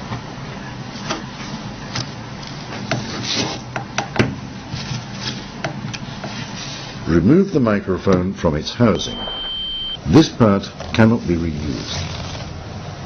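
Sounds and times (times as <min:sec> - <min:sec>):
steady low hum: 0:04.4 - 0:13.0.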